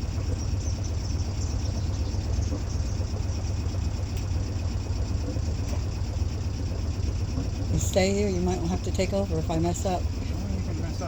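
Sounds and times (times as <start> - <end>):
boat engine low rumble: 0.0 - 11.0.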